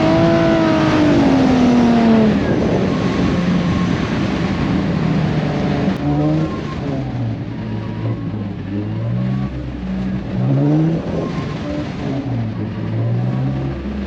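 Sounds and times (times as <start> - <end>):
car engine revving: 0.0 - 14.0
road and tyre noise: 0.0 - 14.0.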